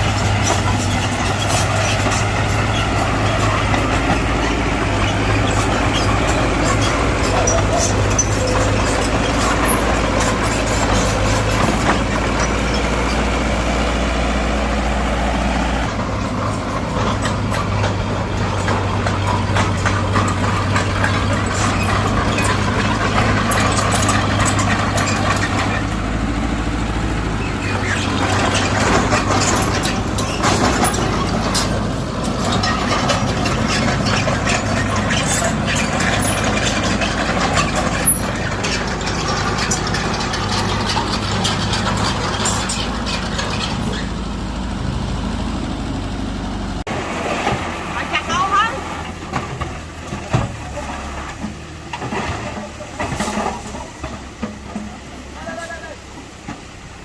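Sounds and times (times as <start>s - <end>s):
heavy diesel engine running: 0.0s - 57.0s
light metallic clanks: 27.6s - 44.2s.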